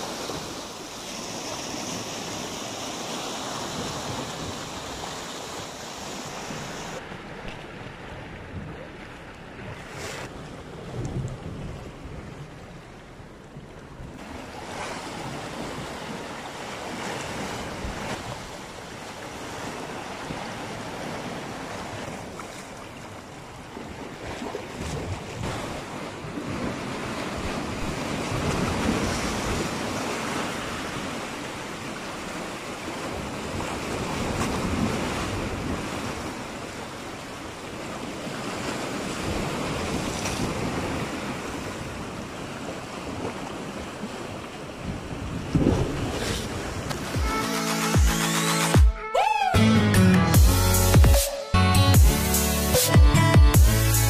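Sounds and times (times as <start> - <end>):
sea waves washing ashore: 0.0 - 49.6
wind buffeting microphone: 44.7 - 47.2.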